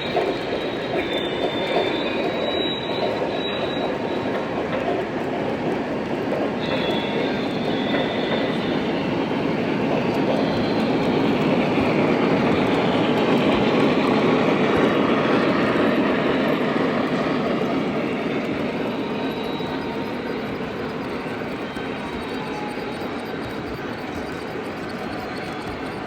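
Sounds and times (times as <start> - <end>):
faint high wheel squeal: 0.0 - 26.0
model train wheels rumbling on rail: 0.0 - 26.0.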